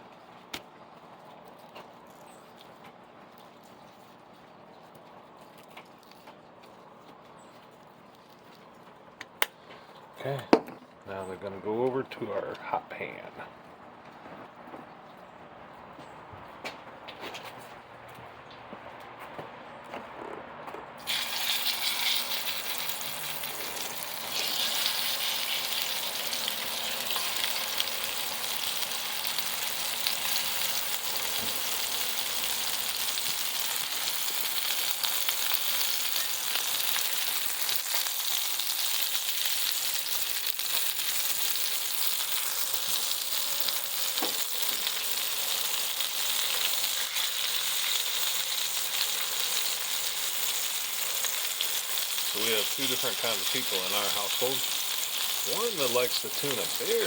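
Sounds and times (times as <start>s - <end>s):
fish sizzling in a frying pan: 21.0s - 57.0s.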